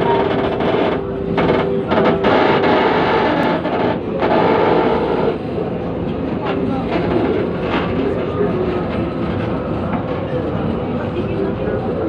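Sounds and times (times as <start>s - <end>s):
train running noise: 0.0s - 12.0s.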